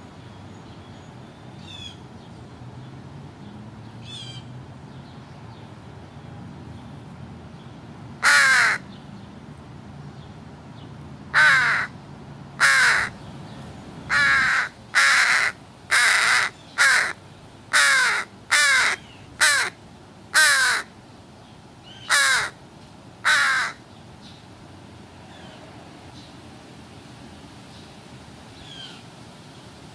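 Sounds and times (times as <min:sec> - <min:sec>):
crow cawing: 0:08.2 - 0:08.8, 0:11.3 - 0:11.9, 0:12.6 - 0:13.2, 0:14.1 - 0:20.9, 0:22.0 - 0:22.6, 0:23.2 - 0:23.8.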